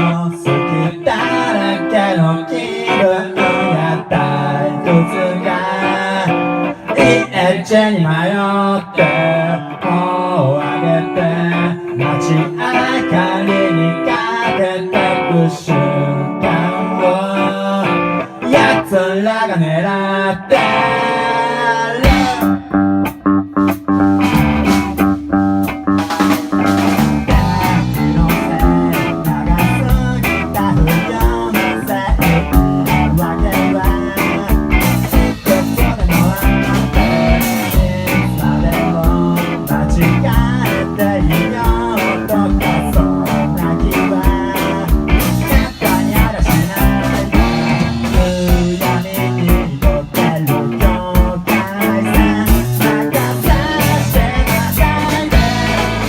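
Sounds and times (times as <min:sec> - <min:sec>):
bass: 0:00.0 - 0:56.0
guitar: 0:00.0 - 0:56.0
steady drum beat: 0:22.0 - 0:56.0.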